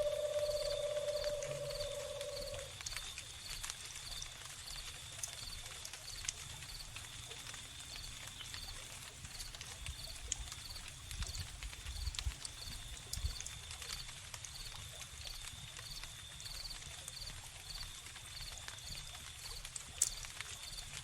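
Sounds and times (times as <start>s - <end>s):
long steady animal call: 0.0s - 2.9s
crickets chirping: 0.0s - 13.5s
wood fire crackling and popping: 0.0s - 15.6s, 16.8s - 21.0s.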